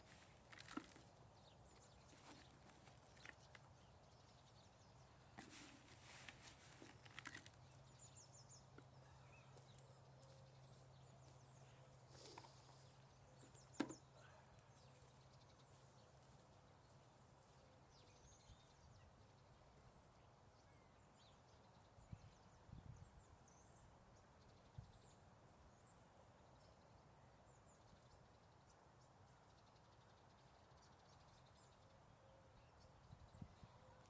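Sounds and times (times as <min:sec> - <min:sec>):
soft rustles: 0:05.4 - 0:07.7.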